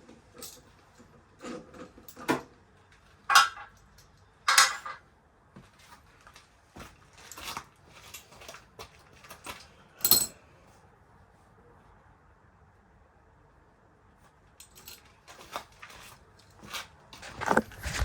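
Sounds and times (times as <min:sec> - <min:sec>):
metal tools clinking and knocking: 0:03.3 - 0:05.0, 0:09.4 - 0:10.4.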